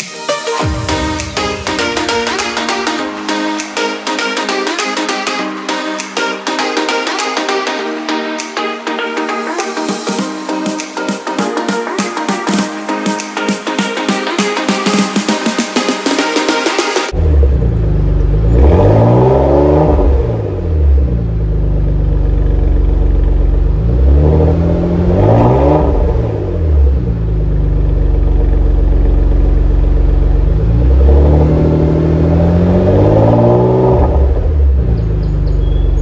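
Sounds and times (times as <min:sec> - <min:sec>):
car engine revving: 0:00.6 - 0:08.0, 0:15.2 - 0:36.0.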